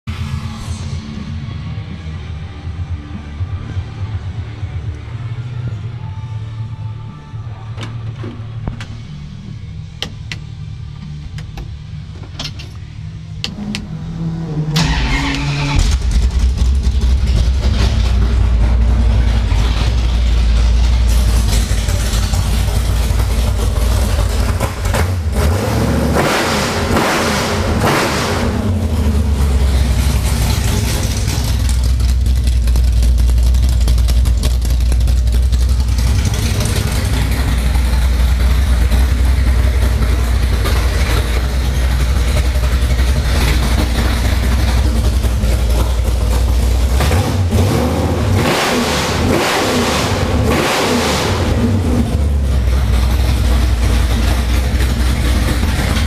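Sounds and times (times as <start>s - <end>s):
car engine starting and revving: 12.4s - 56.0s.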